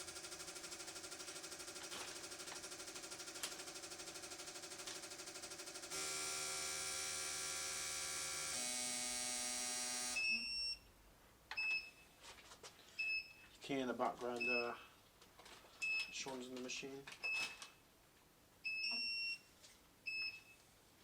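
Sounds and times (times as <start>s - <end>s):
electronic pulsing buzz: 0.0s - 10.2s
steady electronic tone: 5.8s - 10.2s.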